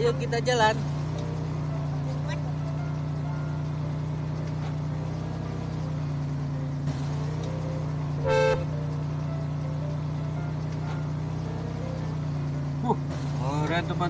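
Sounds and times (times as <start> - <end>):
short horn beep: 8.2 - 8.7.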